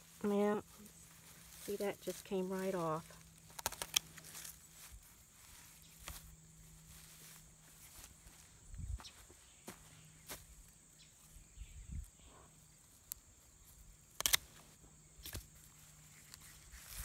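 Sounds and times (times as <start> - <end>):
footsteps: 0.0 - 10.6
rustling in garden vines: 0.0 - 11.4, 12.9 - 17.0
sharp snaps: 14.1 - 14.5.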